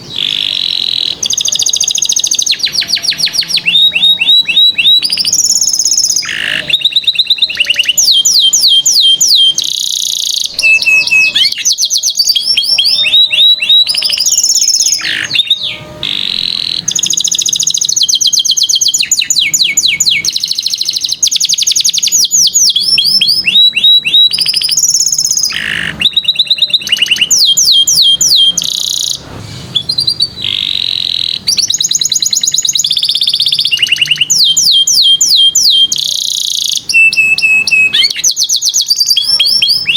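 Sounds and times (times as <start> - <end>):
canary singing fast trills: 0.0 - 39.9.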